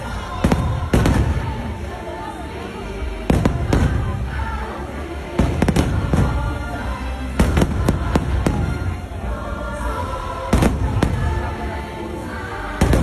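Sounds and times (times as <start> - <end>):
music playing: 0.0 - 13.0
fireworks bursting in sharp bangs: 0.2 - 1.8, 3.2 - 4.4, 5.4 - 9.1, 10.5 - 11.6, 12.8 - 13.0.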